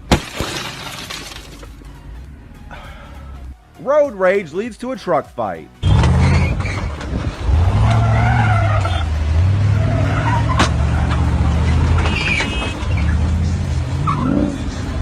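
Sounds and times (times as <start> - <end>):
road noise: 0.0 - 15.0
vehicle engine humming: 5.8 - 15.0.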